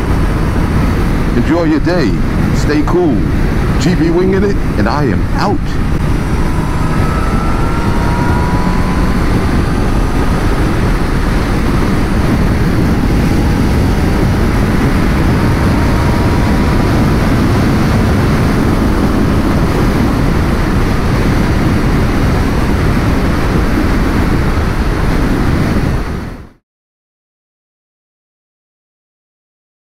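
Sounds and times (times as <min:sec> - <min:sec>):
motorcycle road and engine noise: 0:00.0 - 0:26.6
wind rushing over microphone: 0:00.0 - 0:26.6
faint tones rising in pitch: 0:05.6 - 0:23.6.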